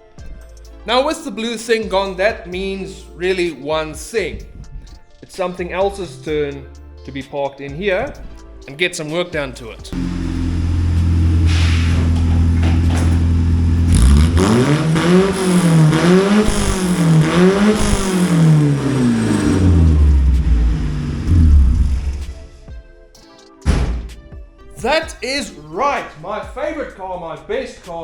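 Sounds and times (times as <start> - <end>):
car engine idling and revving: 10.0 - 22.6.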